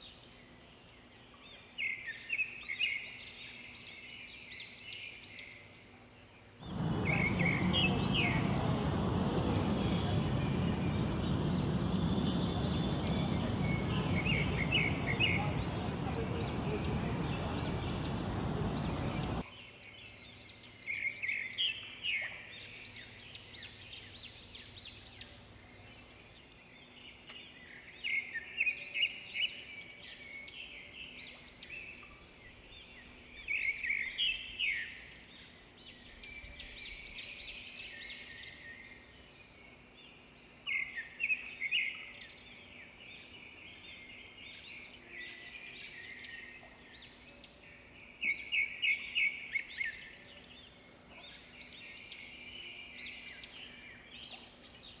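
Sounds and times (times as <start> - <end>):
birds chattering calls: 6.6 - 19.4
loud rushing noise: 6.6 - 19.4.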